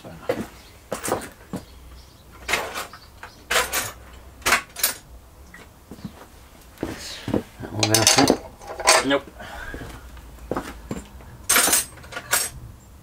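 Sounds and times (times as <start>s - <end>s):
metal tools clattering and scraping: 2.4s - 5.1s, 7.7s - 9.2s, 10.9s - 12.6s.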